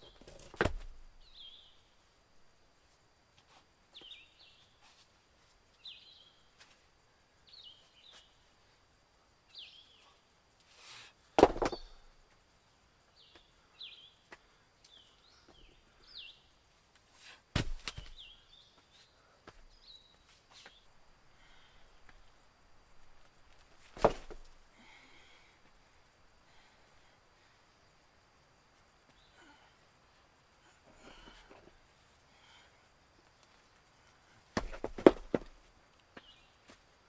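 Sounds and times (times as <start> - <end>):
loud knocks: 11.4 - 11.9.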